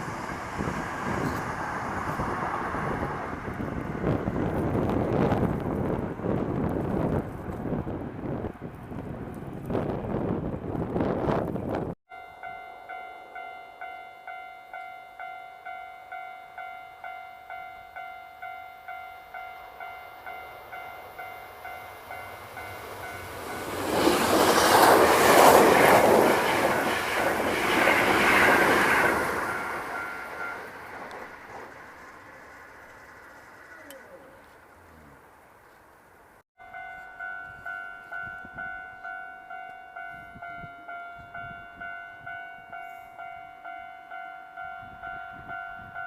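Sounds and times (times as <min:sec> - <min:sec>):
level crossing bell ringing: 0:12.1 - 0:23.6, 0:36.6 - 0:46.0.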